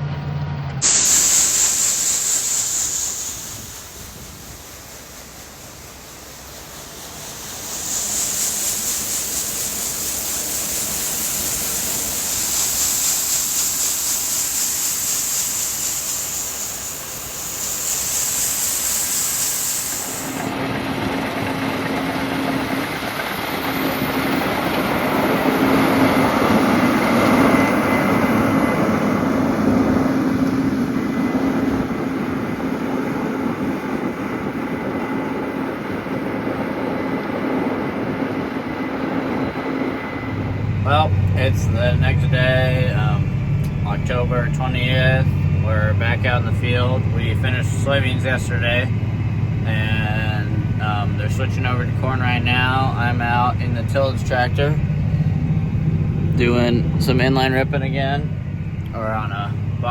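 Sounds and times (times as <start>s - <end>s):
tractor engine drone: 0.0s - 59.9s
steady hiss: 0.8s - 20.8s.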